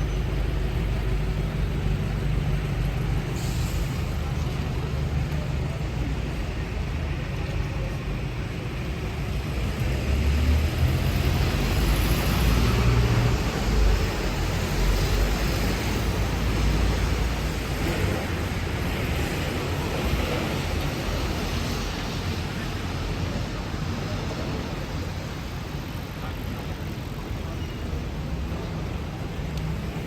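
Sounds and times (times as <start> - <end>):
engines of passing vehicles: 0.0 - 30.0
hiss of wet road: 0.4 - 6.7, 11.4 - 26.8.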